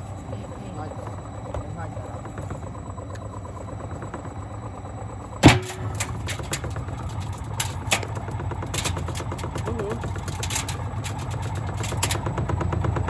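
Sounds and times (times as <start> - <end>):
washing machine drum humming: 0.4 - 13.0
loud bang in drum: 5.4 - 6.0.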